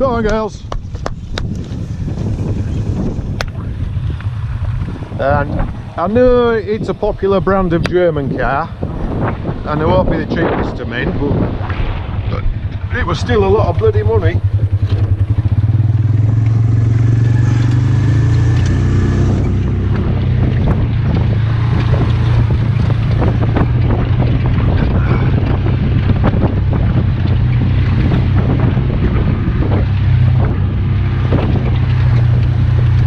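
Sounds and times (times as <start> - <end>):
utility vehicle engine running: 0.0 - 9.8, 10.4 - 33.0
vehicle knocks and rattles: 11.6 - 33.0.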